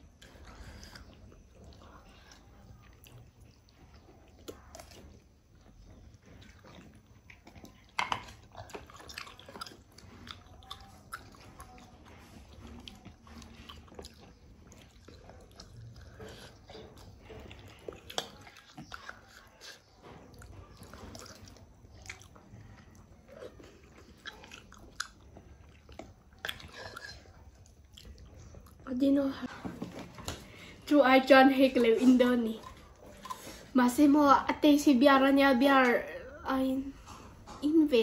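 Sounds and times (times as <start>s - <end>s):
person chewing noodles: 0.0s - 28.9s, 32.6s - 33.7s.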